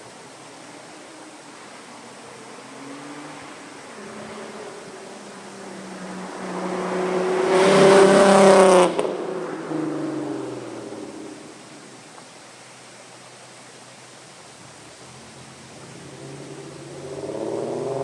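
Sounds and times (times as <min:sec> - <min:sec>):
car engine driving by: 0:02.6 - 0:11.3, 0:15.6 - 0:18.0.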